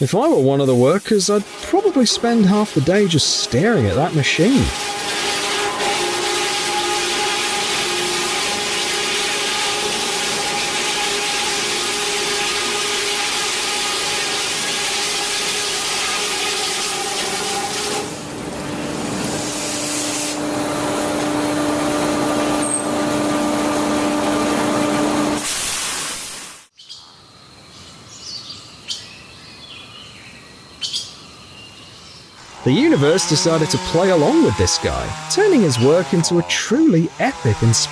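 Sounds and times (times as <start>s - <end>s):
debarking machine grinding and whining: 1.1s - 25.4s, 32.4s - 37.9s.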